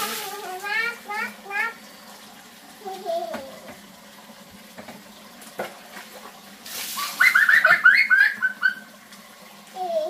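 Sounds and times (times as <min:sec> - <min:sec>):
tap running into plastic basin: 0:03.0 - 0:08.0.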